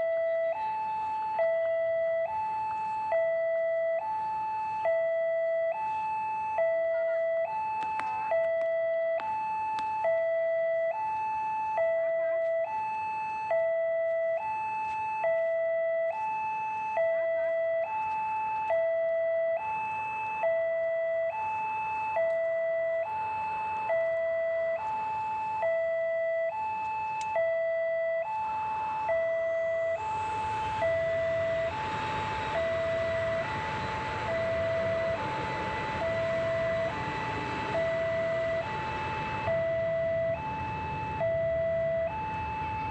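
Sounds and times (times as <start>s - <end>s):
level crossing two-tone alarm: 0.0s - 42.9s
passing train rumble: 29.0s - 42.9s.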